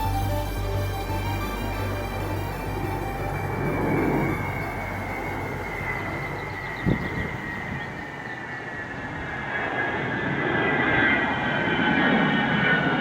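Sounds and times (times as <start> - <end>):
jet engines whining and rumbling: 0.0 - 13.0.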